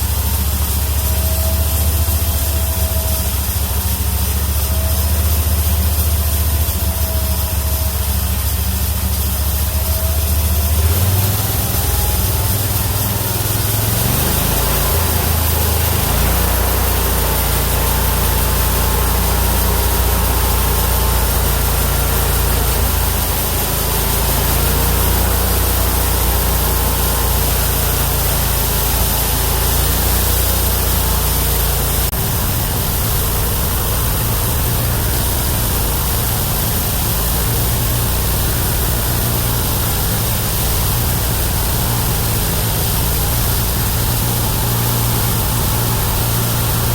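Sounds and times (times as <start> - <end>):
band saw blade cutting log: 0.0 - 46.9
engine running under load: 0.0 - 46.9.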